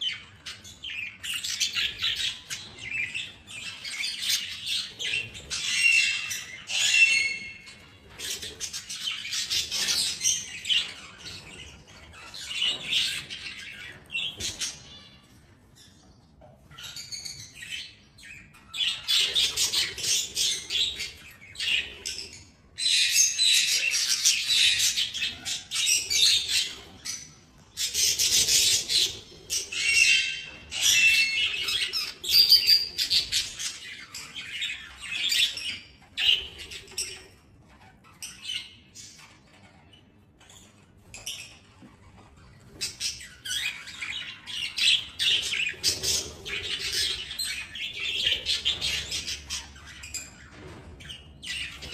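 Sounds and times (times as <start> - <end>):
budgerigars chattering: 40.6 - 51.9.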